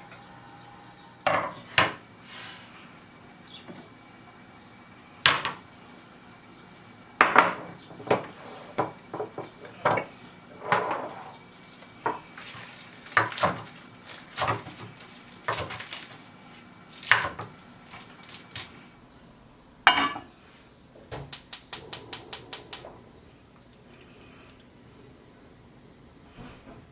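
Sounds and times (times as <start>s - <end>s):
even taps: 21.2s - 23.0s.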